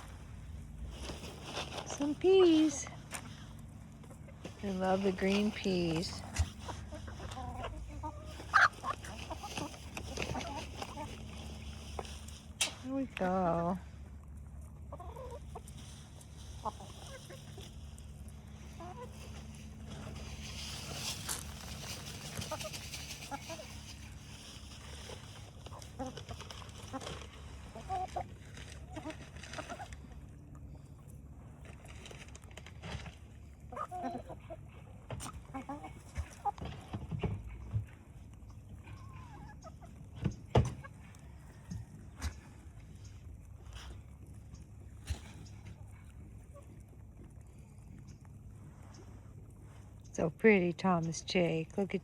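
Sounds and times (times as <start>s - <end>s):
chickens clucking: 0.0s - 52.0s
hissy rustle: 19.1s - 27.2s
animals knocking and thumping: 34.7s - 43.1s.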